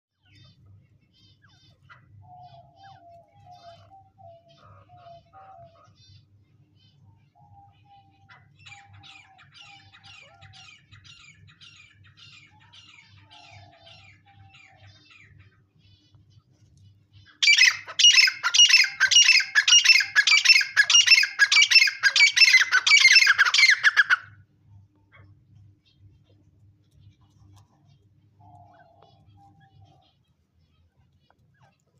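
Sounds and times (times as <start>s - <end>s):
faint low hum: 0.2s - 17.9s, 18.9s - 31.9s
francolin calling: 17.4s - 24.3s.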